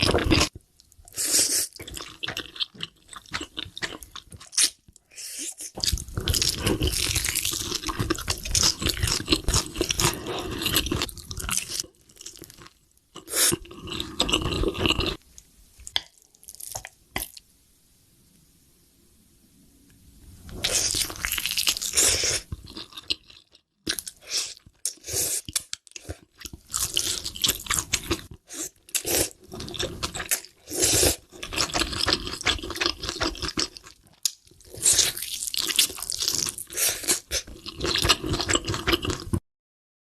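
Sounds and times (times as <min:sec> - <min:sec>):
crunching and chewing fried chicken: 0:00.0 - 0:00.6, 0:01.8 - 0:04.9, 0:05.7 - 0:15.2, 0:20.6 - 0:39.4.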